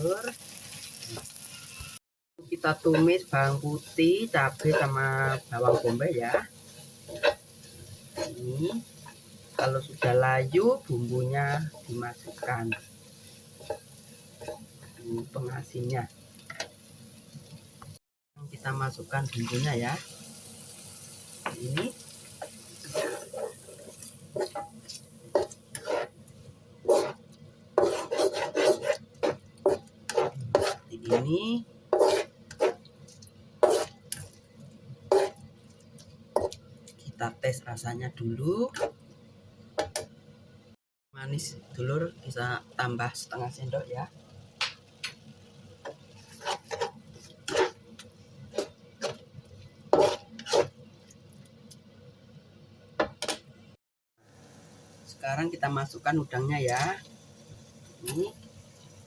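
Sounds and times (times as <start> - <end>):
spatula scraping a frying pan: 2.9 - 14.7, 22.3 - 26.2, 26.8 - 32.9, 33.6 - 34.4, 35.1 - 35.5, 45.8 - 50.8
utensil scraping a metal pan: 22.8 - 26.2, 26.8 - 27.2, 27.8 - 32.8, 33.6 - 34.0, 46.1 - 47.8, 49.9 - 50.8.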